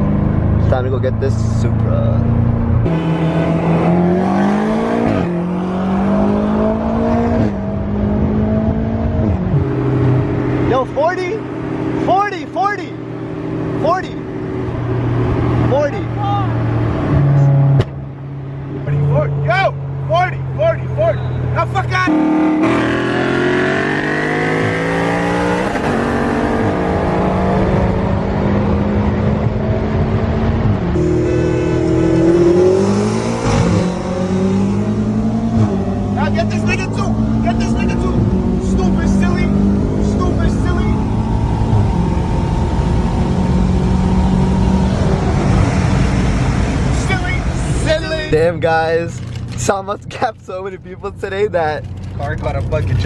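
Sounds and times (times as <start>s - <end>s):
car engine accelerating through gears: 0.0s - 10.8s, 22.1s - 47.9s.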